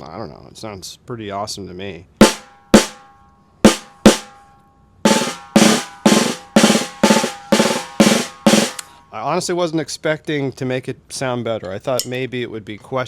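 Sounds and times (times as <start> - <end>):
snare drum being struck: 2.2 - 3.1, 3.7 - 4.4, 5.1 - 8.8.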